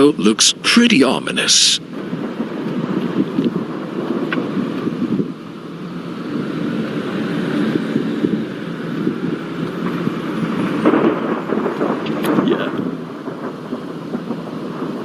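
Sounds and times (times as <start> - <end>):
low rumbling wind: 0.0 - 15.0.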